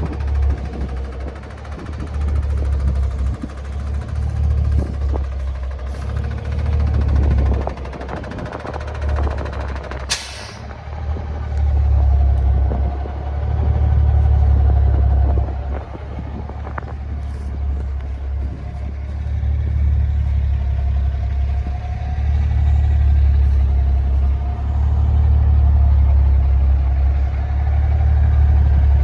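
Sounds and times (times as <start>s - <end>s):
truck engine rumbling: 0.0s - 29.0s
short sharp hiss: 10.1s - 10.7s.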